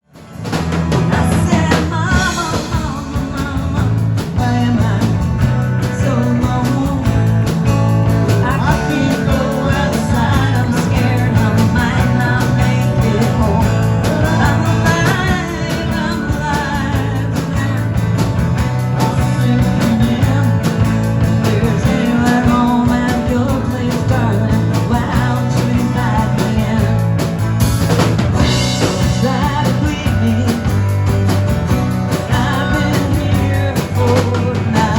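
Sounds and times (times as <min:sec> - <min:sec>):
rock band playing live: 0:00.0 - 0:34.9
lead singer singing: 0:01.0 - 0:27.6, 0:28.2 - 0:34.9.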